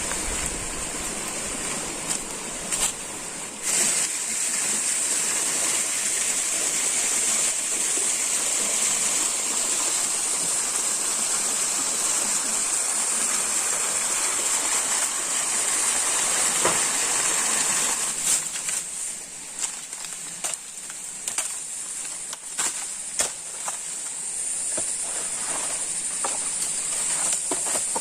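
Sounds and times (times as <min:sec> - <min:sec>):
stream water rushing: 0:00.0 - 0:28.0.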